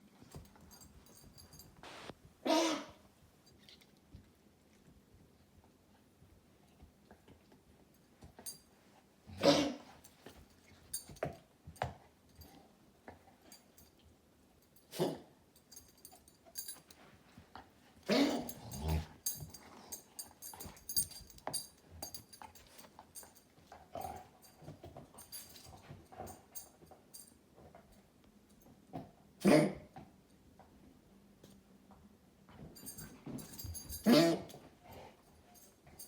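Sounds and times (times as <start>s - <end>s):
dog coughing: 2.4s - 3.0s, 9.4s - 9.9s, 18.1s - 18.6s, 29.4s - 29.9s, 34.0s - 34.5s.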